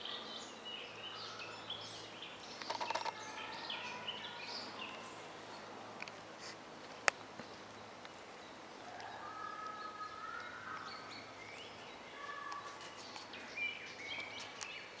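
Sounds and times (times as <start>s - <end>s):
birds singing: 0.0s - 5.7s, 6.4s - 15.0s.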